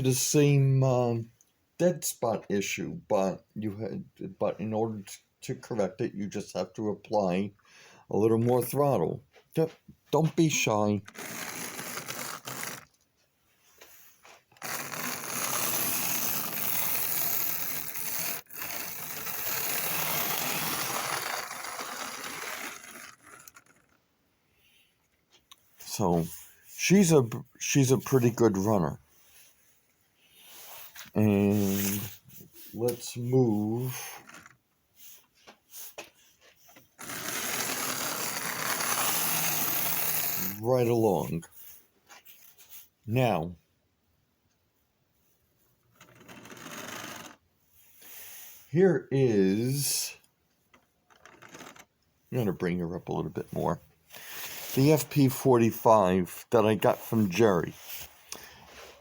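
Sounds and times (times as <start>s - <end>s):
model train whirring on track: 14.9s - 22.7s.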